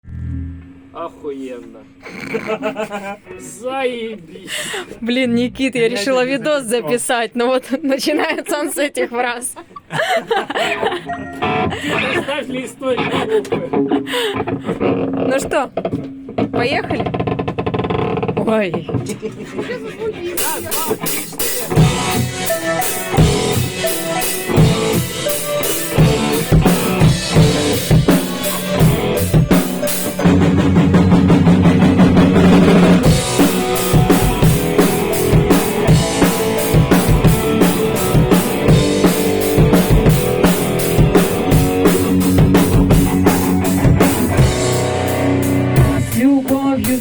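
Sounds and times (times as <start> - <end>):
guitar chords ringing: 11.1 - 12.1, 21.7 - 46.2
rock band playing: 11.1 - 12.2, 20.4 - 47.0
drums keeping steady beat: 18.4 - 47.0.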